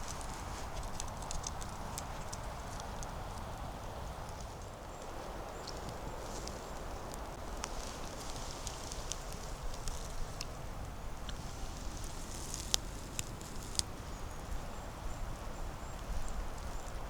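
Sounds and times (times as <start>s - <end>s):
footsteps crunching through dry leaves: 0.0s - 2.6s.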